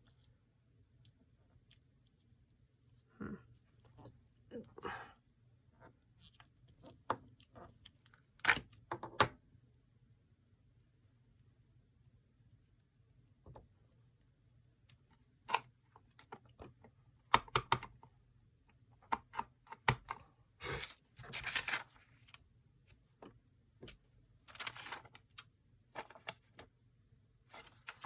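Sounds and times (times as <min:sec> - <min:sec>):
paper rustling: 0:20.7 - 0:22.4, 0:24.5 - 0:25.2, 0:27.5 - 0:28.0.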